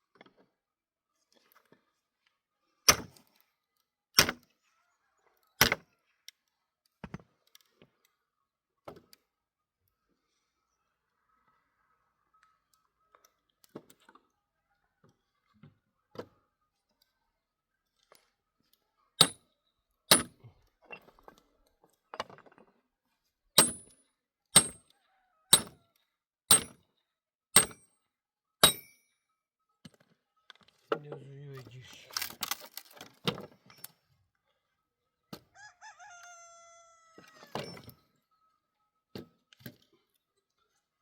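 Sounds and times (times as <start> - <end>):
sharp ringing knocks: 20.1 - 20.3, 23.6 - 23.9, 24.6 - 24.8, 25.6 - 25.8, 26.5 - 26.8, 27.6 - 27.9, 28.6 - 29.0.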